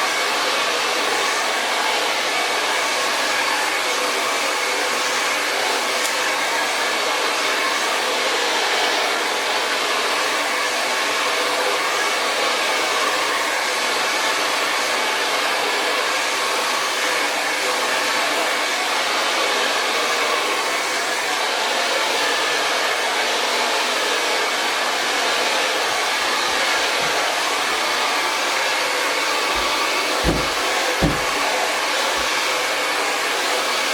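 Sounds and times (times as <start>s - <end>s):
hair dryer blowing: 0.0s - 33.9s
low thumps: 29.6s - 31.6s.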